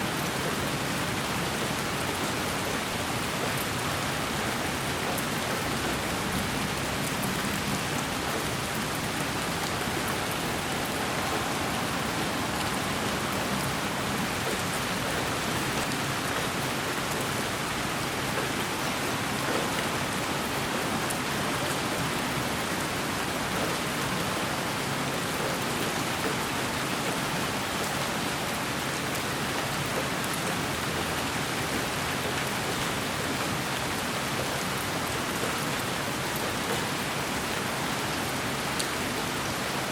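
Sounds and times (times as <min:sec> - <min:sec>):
white noise hiss: 0:08.2 - 0:17.5.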